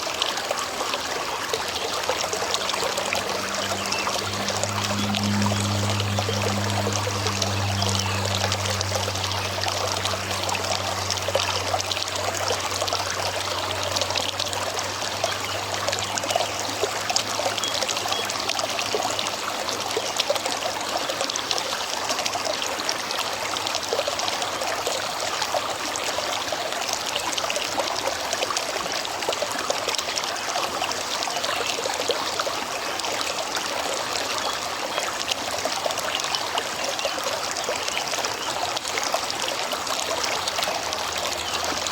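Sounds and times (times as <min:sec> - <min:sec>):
river water flowing: 0:00.0 - 0:41.9
low hum: 0:01.3 - 0:19.8.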